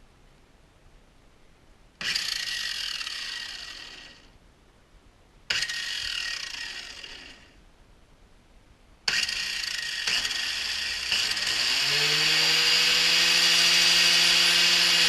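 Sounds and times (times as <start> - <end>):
angle grinder running: 2.0 - 4.3, 5.5 - 7.5, 9.1 - 15.0.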